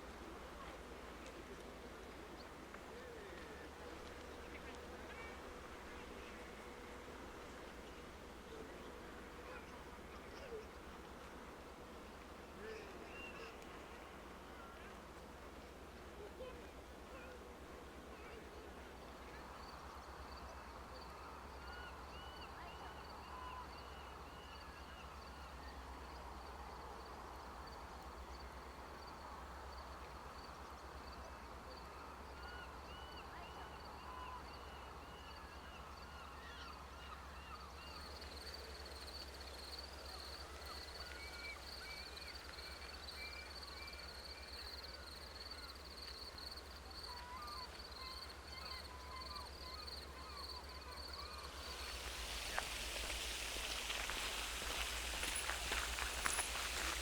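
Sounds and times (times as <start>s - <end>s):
birds chirping: 51.2s - 57.0s.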